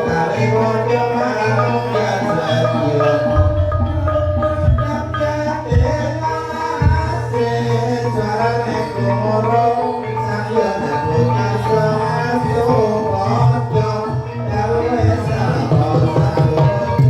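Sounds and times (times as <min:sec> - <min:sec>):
hand-drum strokes: 0:00.0 - 0:08.6, 0:12.5 - 0:17.0
wavering melody line: 0:00.0 - 0:17.0
gong-like tones: 0:00.9 - 0:09.6.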